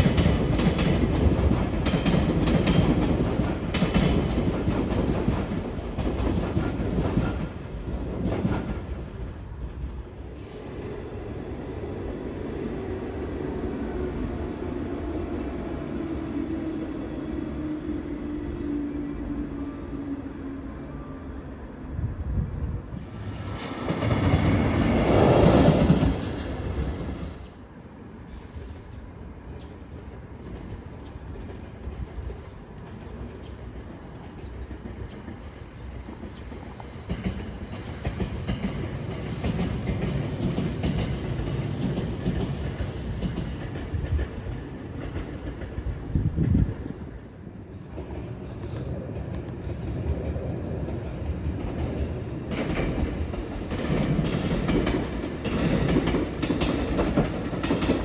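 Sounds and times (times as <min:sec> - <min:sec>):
train wheels rumbling on track: 0:00.0 - 0:58.0
high wheel squeal: 0:37.4 - 0:44.6.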